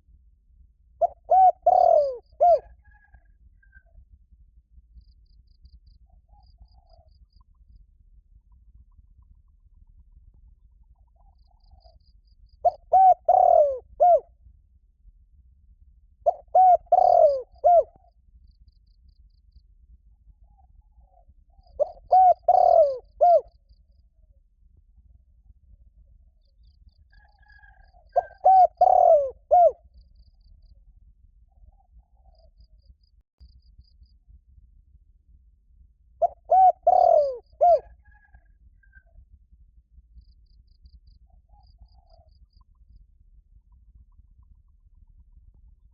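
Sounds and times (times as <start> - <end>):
dove cooing: 1.0 - 3.3, 12.6 - 14.3, 16.2 - 18.1, 21.0 - 23.5, 27.4 - 29.8, 36.2 - 39.0.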